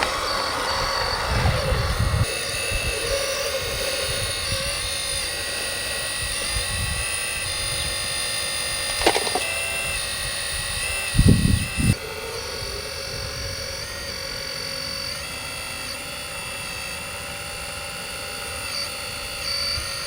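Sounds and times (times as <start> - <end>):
small electric motors whining: 0.0 - 20.0
sharp click: 8.8 - 9.7.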